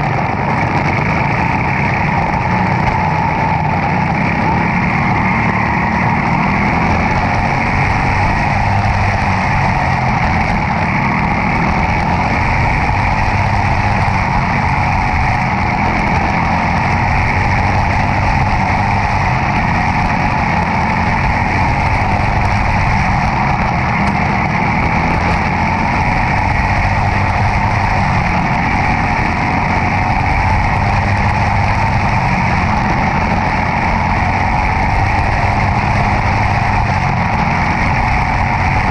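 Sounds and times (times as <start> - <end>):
car engine running loudly: 0.0 - 38.9.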